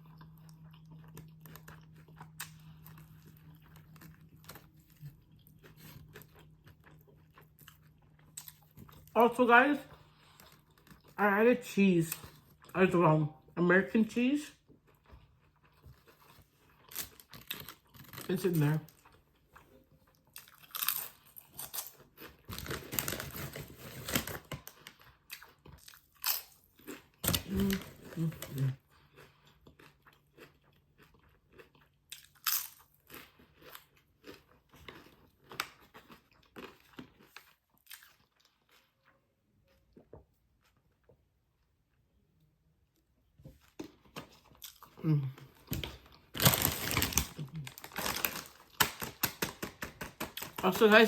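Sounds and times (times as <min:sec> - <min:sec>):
chewing crunches: 0:00.0 - 0:09.3, 0:14.5 - 0:41.1
food packaging crinkling: 0:16.0 - 0:18.5, 0:20.5 - 0:25.0, 0:45.7 - 0:51.0.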